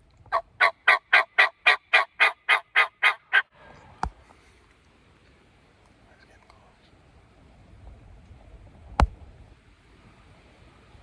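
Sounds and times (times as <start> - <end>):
turkey yelps: 0.3 - 3.5.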